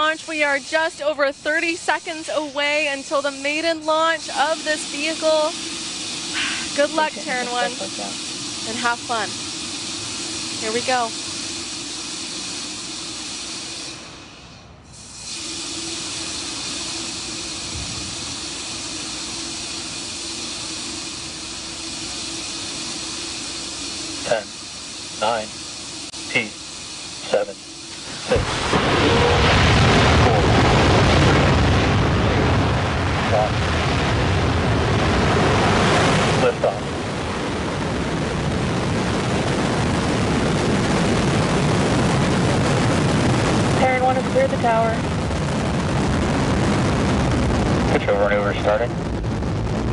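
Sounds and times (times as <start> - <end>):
rocket engines rumbling: 0.0 - 49.9
steady hiss: 0.0 - 49.9.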